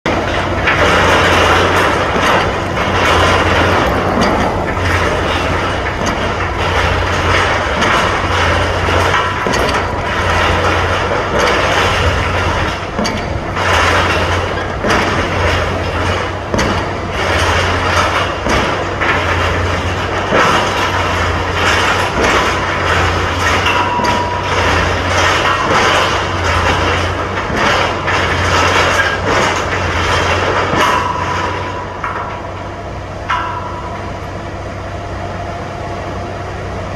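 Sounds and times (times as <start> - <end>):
steady low drone: 0.1 - 12.7.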